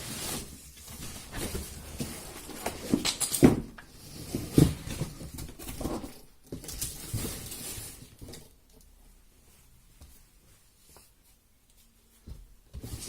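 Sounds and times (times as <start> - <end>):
handling knocks and scuffs: 9.9 - 13.0.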